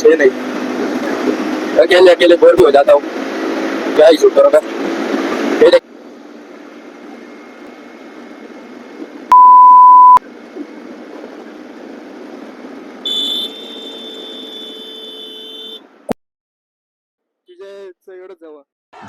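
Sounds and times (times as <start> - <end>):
motorcycle riding noise: 0.2 - 9.3
censor bleep: 9.3 - 10.2
high steady tone: 9.3 - 10.2.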